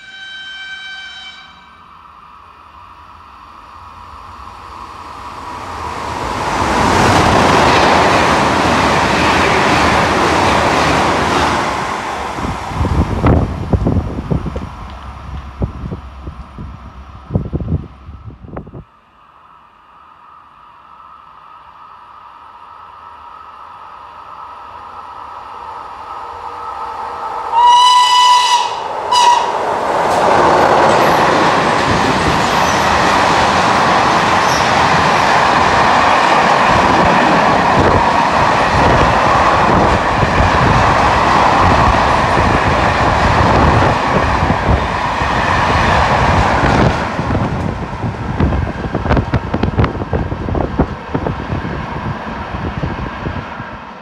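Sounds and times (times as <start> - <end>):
train horn blast: 0.0 - 1.9, 27.5 - 29.7
train rail and wheel noise: 0.0 - 54.0.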